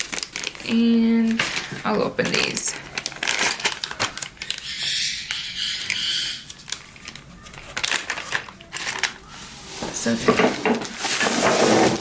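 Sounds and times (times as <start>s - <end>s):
small hard accessories clicking: 0.0s - 9.3s
plastic bags crinkling: 0.0s - 12.0s.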